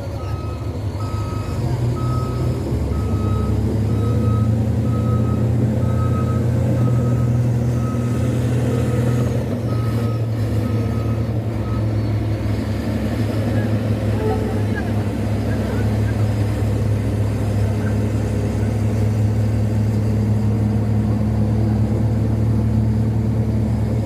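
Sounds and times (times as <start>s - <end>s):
truck reversing alarm beeping: 0.0s - 12.6s
truck engine running: 0.0s - 24.0s.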